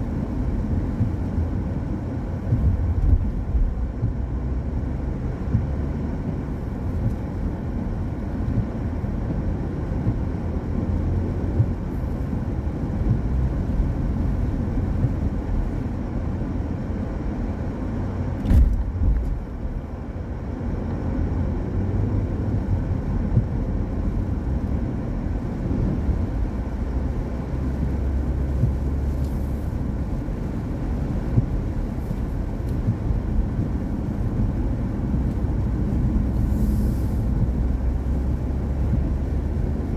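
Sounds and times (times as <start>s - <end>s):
car tyres on wet road: 0.0s - 39.9s
sharp thump: 18.4s - 19.4s.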